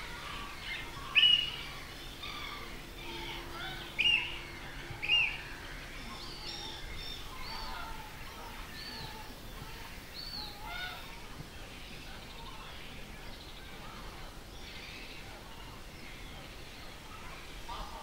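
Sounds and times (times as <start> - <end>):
many birds chirping: 0.0 - 18.0.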